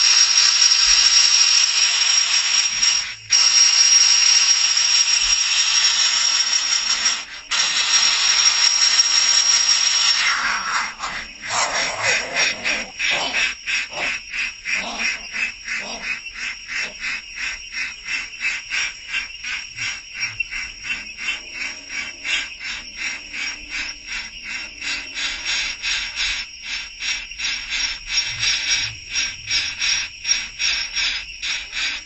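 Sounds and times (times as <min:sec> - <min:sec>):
small birds chirping: 0:10.2 - 0:32.0.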